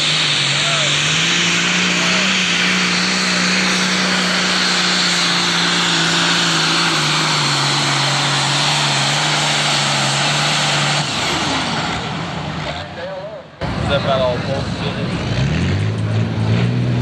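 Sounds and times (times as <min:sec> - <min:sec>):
turbo high whine and rush: 0:00.0 - 0:15.2
diesel tractor engine at full throttle: 0:00.0 - 0:17.0.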